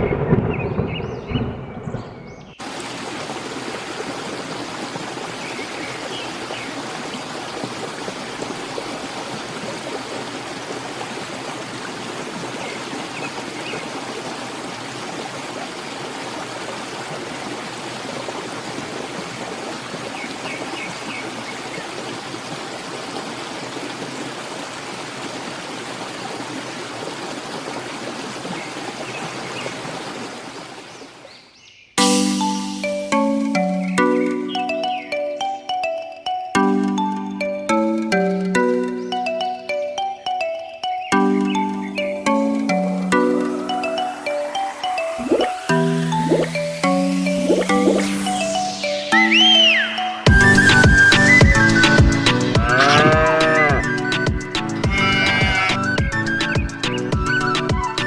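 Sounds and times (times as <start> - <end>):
flowing water rushing: 2.6 - 58.0.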